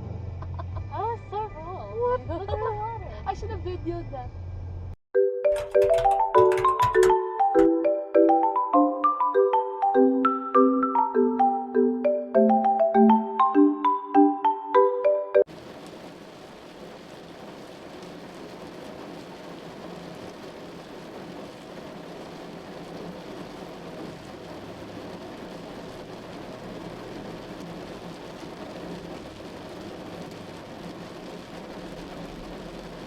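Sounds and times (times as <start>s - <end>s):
raindrop ticks: 5.6s - 7.8s, 15.5s - 33.0s
rain on a moving car: 15.5s - 33.0s.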